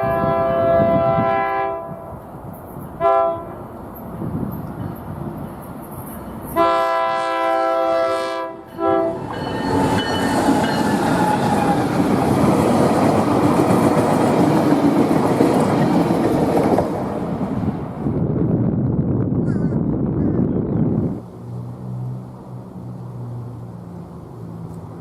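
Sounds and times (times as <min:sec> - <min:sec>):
locomotive air horn: 0:00.0 - 0:02.2, 0:03.0 - 0:03.6, 0:06.5 - 0:09.3
train wheels rumbling on rails: 0:02.1 - 0:06.8, 0:08.6 - 0:19.4.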